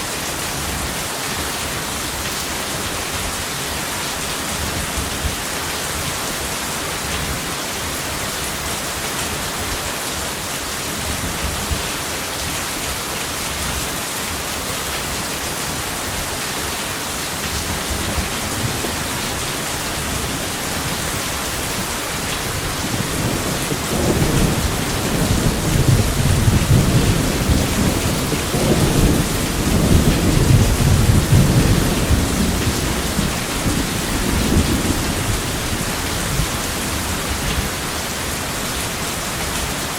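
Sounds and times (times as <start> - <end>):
heavy rain hissing: 0.0 - 39.9
thunder rumbling: 17.6 - 37.8.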